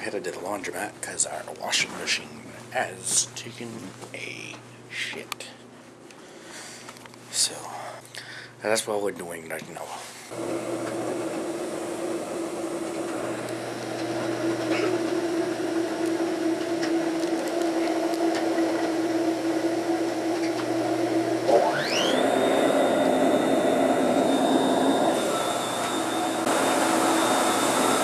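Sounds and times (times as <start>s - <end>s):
machinery humming: 10.3s - 28.0s
motor whine spinning up: 10.3s - 28.0s.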